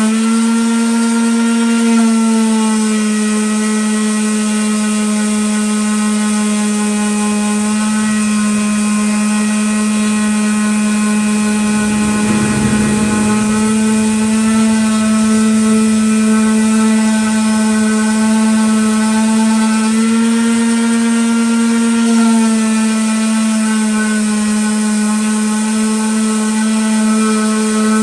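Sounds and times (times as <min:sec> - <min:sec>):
rough low noise: 0:10.6 - 0:20.6.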